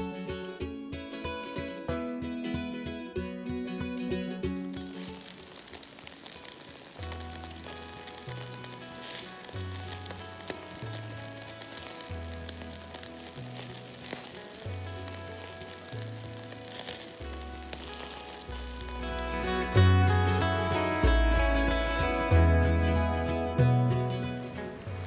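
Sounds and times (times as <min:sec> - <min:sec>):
hot oil sizzling: 0:04.6 - 0:23.8
oil spitting: 0:04.7 - 0:19.7
background music with bass line: 0:17.2 - 0:25.0.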